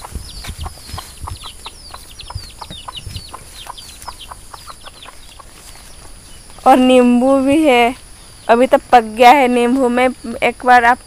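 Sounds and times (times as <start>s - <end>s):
footsteps through vegetation: 0.0s - 8.4s
birds chirping: 0.0s - 11.0s.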